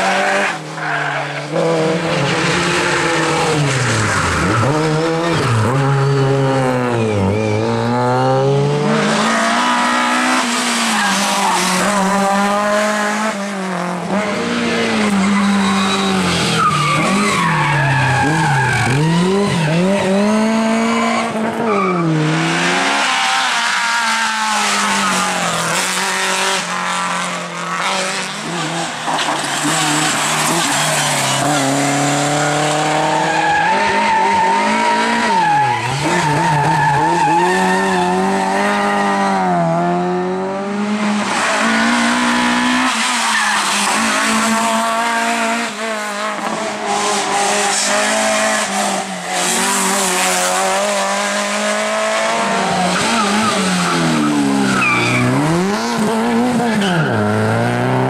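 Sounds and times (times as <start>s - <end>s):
tyres squealing and skidding: 0.0s - 12.5s, 14.1s - 39.6s, 41.3s - 45.6s, 46.4s - 57.8s
rally car engines revving hard: 0.0s - 58.0s.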